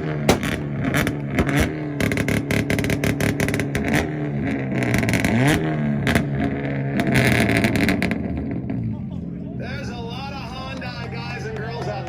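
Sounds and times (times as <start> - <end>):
exhaust pops and bangs: 0.3 - 4.1
car engine bouncing on limiter: 0.3 - 8.8.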